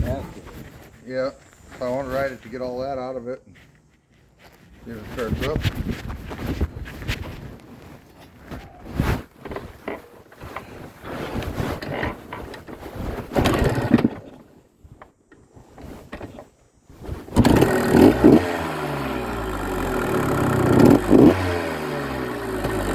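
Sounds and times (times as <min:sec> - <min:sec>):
scuffing and knocking: 0:03.5 - 0:08.8
two-stroke motorcycle engine revving: 0:13.4 - 0:14.1, 0:17.3 - 0:22.9.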